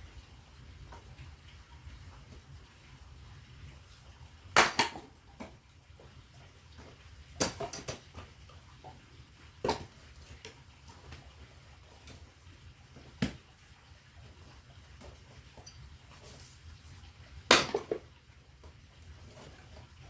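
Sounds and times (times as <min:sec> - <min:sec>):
sharp knocks on firewood: 0:04.6 - 0:05.6, 0:07.4 - 0:08.0, 0:17.5 - 0:18.0.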